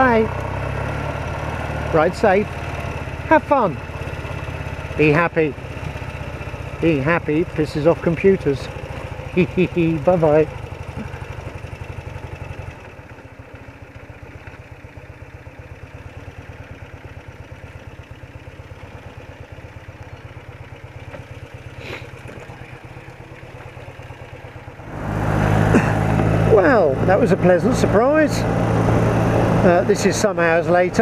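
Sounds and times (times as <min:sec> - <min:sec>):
loud engine noise: 0:00.0 - 0:13.7, 0:21.0 - 0:31.0
motorcycle engine idling: 0:00.0 - 0:31.0.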